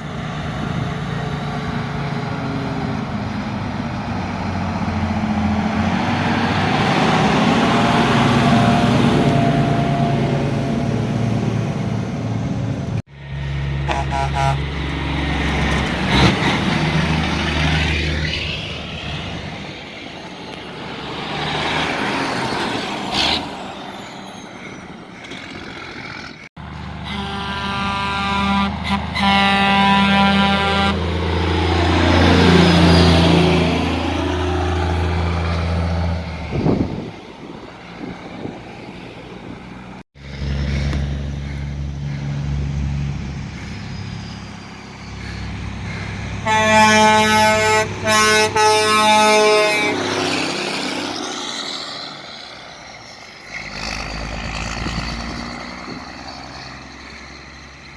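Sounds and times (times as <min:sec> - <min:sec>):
truck engines rumbling: 0:00.0 - 0:57.9
multi-tone air horn blast: 0:13.8 - 0:14.8, 0:26.9 - 0:31.1, 0:46.4 - 0:50.2.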